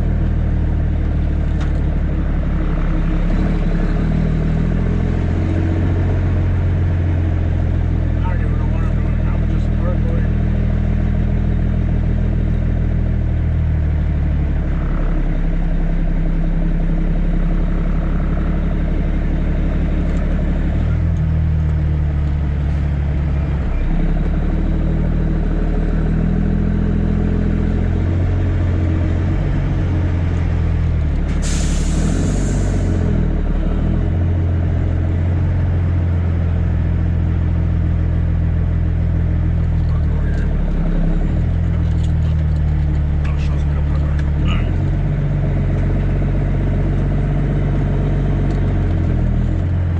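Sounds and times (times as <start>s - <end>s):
diesel truck engine shifting gears: 0.0s - 49.9s
air hiss: 31.3s - 33.0s.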